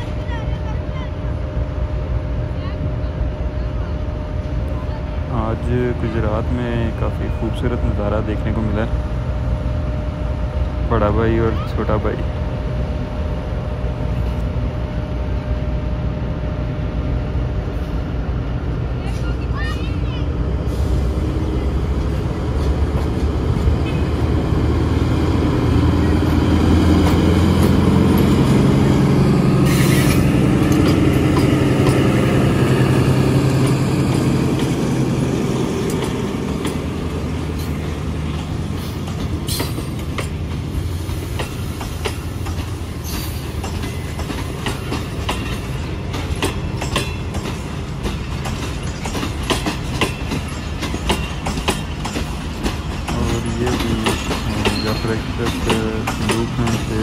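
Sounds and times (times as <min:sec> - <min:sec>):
locomotive engine hum: 0:00.0 - 0:57.0
train wheels clattering over rail joints: 0:21.8 - 0:57.0.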